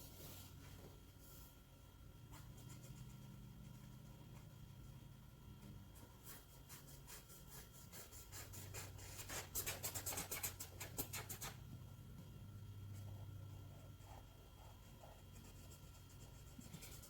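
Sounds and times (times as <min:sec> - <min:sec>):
scribbling on paper: 0:06.0 - 0:11.6, 0:13.0 - 0:17.0.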